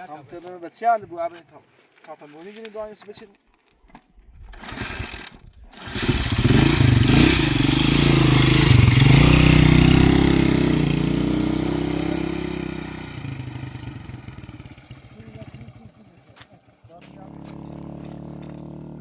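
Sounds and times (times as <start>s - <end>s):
vehicle engine running: 6.0s - 19.0s.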